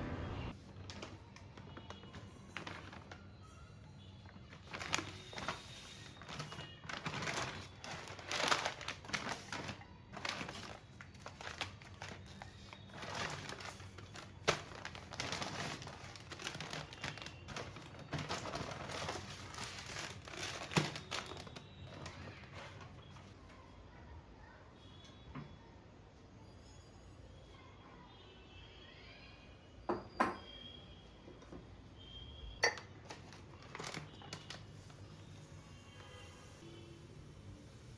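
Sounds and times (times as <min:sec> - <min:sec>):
plastic packaging crinkling: 0:00.7 - 0:23.3, 0:32.6 - 0:36.2.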